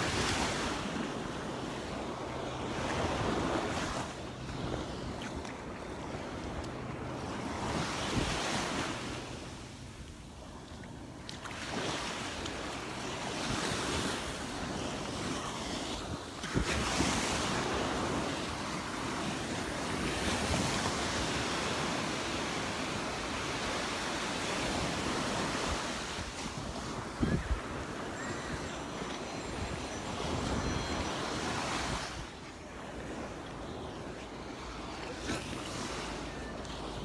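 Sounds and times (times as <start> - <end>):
wind buffeting microphone: 24.7 - 32.4.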